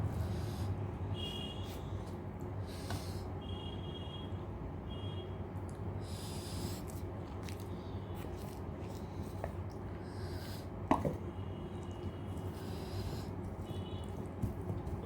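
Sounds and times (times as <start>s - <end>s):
steady low hum: 0.0s - 15.0s
soft breaths through nose: 6.0s - 7.0s, 12.4s - 13.4s
person chewing food: 6.6s - 10.0s.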